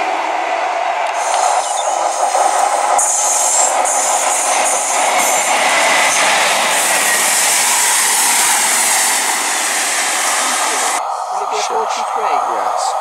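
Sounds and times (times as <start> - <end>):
train passing rush: 0.0 - 13.0
faint voices: 10.2 - 13.0.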